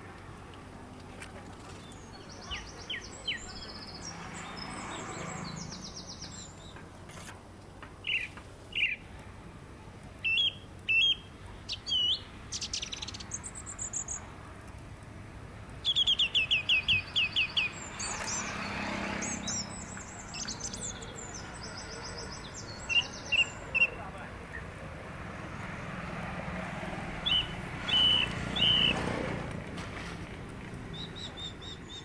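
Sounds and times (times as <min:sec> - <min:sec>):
birds singing and chirping: 0:01.6 - 0:07.3, 0:08.0 - 0:09.1, 0:10.2 - 0:14.2, 0:15.7 - 0:24.8, 0:27.1 - 0:29.6, 0:30.6 - 0:32.0.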